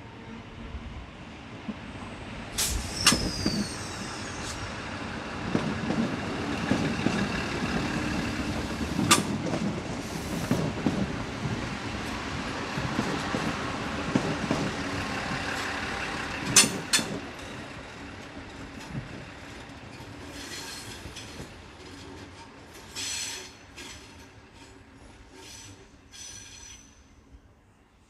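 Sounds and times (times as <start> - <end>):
high wheel squeals: 2.7 - 4.6
train wheels clacking over rail joints: 5.5 - 11.6, 12.7 - 27.0.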